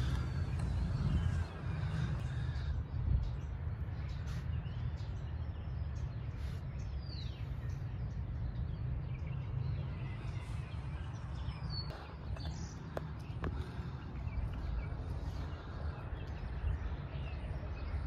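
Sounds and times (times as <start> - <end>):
bird chirps: 0.0 - 18.0.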